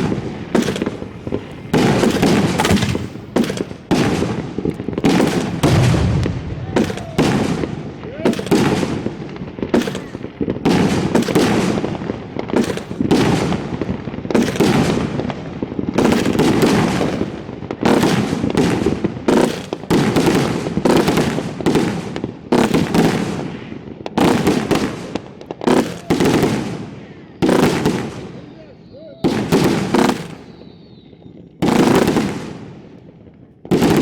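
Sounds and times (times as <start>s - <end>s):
fireworks booming: 0.0s - 34.0s.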